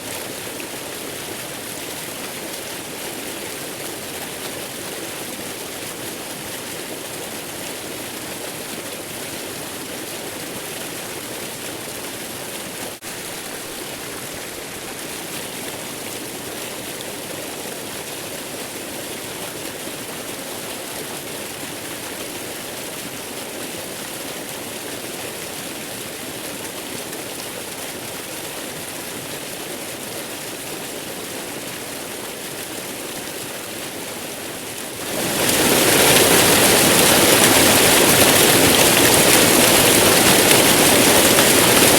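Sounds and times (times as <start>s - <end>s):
waterfall rushing: 34.5s - 41.9s.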